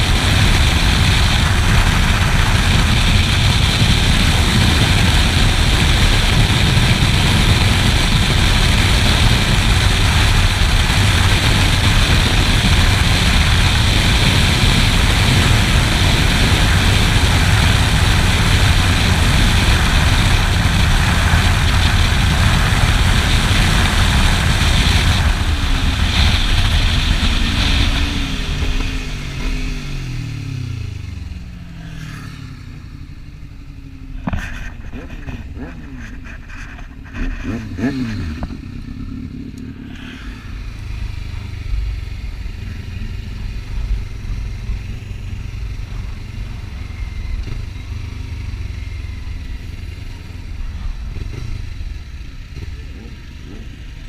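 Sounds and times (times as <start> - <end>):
wind rush: 0.0 - 32.6
motorcycle engine rumble: 0.0 - 54.0.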